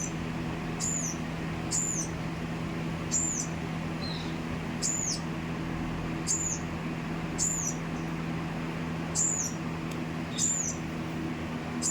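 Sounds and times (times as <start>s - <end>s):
small bird chirping: 0.0s - 0.2s, 0.8s - 2.2s, 3.1s - 5.3s, 6.2s - 6.7s, 7.3s - 8.2s, 9.1s - 9.6s, 10.3s - 10.9s.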